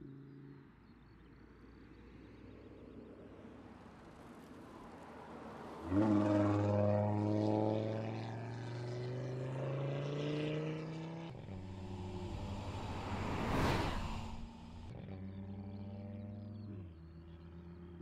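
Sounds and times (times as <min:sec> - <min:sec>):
car engine accelerating: 0:04.1 - 0:18.0.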